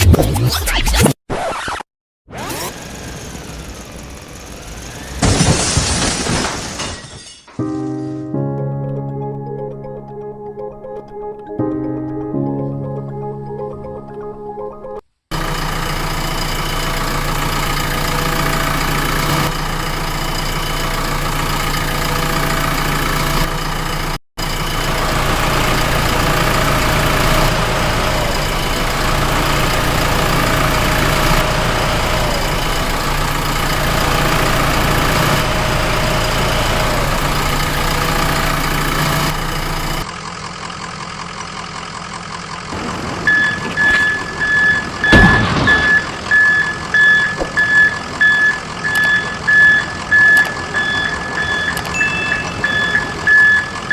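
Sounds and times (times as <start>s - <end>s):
heavy vehicle engine idling: 2.8s - 5.2s, 15.3s - 53.9s
vehicle reversing beeps: 43.2s - 53.9s.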